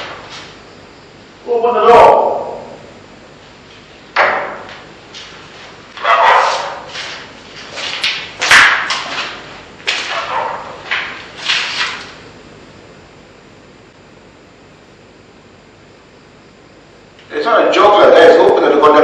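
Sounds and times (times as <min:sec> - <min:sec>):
dog barking: 0:06.0 - 0:06.9, 0:10.1 - 0:10.8.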